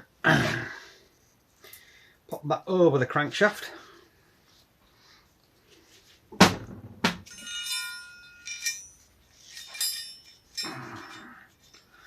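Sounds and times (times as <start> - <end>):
metal chain clinking: 7.2 - 12.0.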